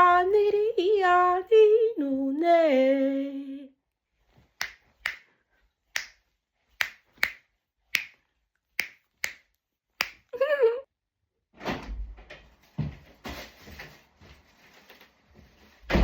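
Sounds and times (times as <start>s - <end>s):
finger snaps: 4.6s - 5.3s, 5.9s - 6.2s, 6.8s - 10.3s.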